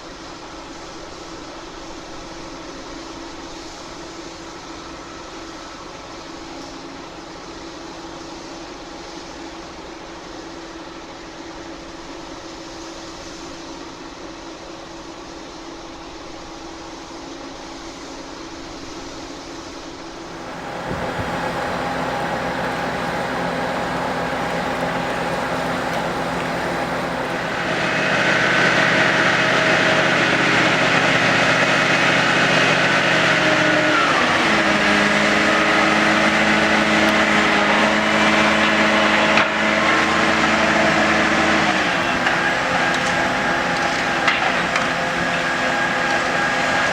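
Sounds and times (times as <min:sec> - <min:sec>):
heavy diesel engine under load: 0:20.2 - 0:46.9.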